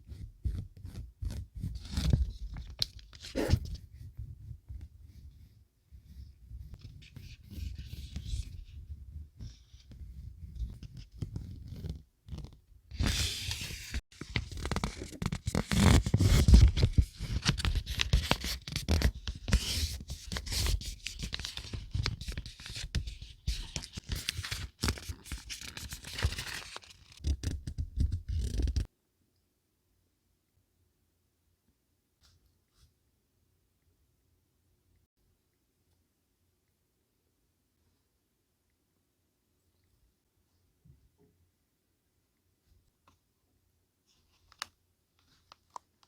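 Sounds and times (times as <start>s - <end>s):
paper and packaging crinkling: 23.5s - 27.3s.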